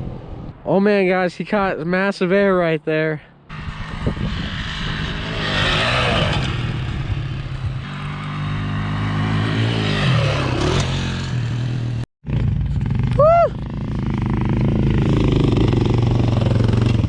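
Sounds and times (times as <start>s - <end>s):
dirt bike engine revving: 3.5s - 17.0s.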